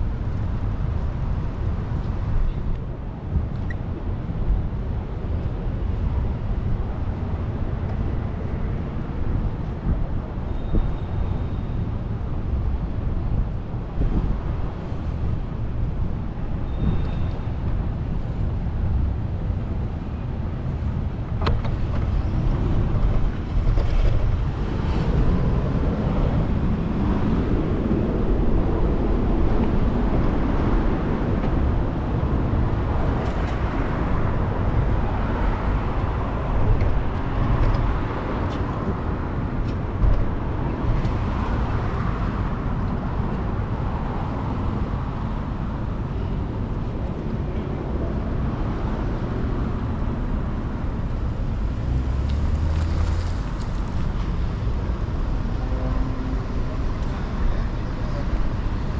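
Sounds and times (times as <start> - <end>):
wind rushing over microphone: 0.0 - 58.9
motor traffic passing: 41.1 - 58.9.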